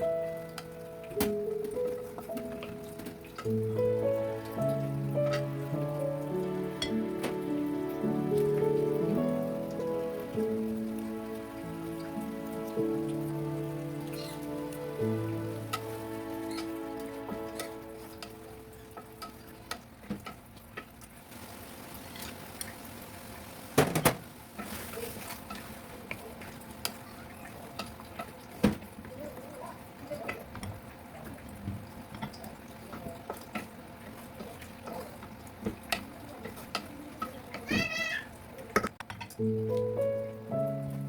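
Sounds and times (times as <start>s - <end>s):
food sizzling: 0.0s - 29.1s, 39.4s - 41.0s
high-pitched cry: 37.7s - 38.3s.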